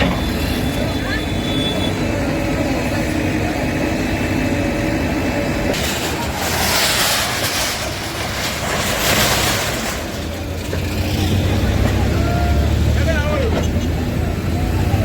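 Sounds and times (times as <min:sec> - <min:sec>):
heavy engine running: 0:00.0 - 0:15.0
rough clattering noise: 0:05.7 - 0:12.1.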